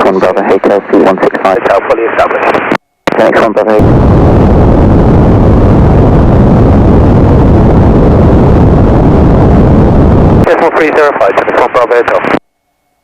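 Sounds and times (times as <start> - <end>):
light aircraft cabin rumble: 3.8 - 10.5.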